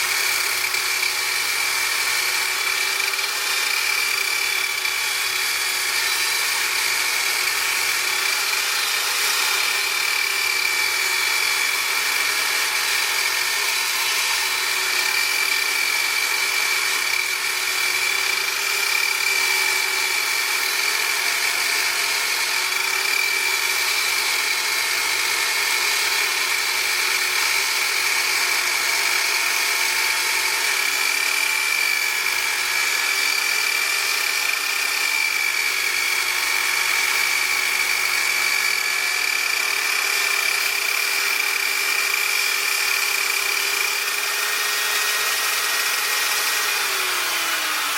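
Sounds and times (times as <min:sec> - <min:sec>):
power tool motor whine: 0:00.0 - 0:47.9.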